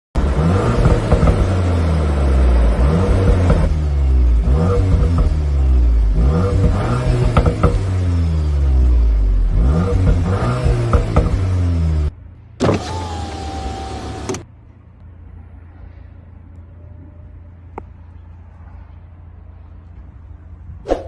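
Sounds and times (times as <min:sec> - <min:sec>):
car engine revving: 0:00.2 - 0:14.5.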